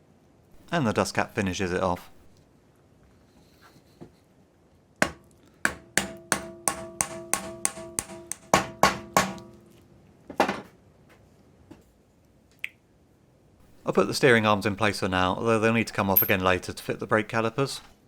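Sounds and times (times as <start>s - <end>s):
hammer tapping metal: 5.0s - 9.6s.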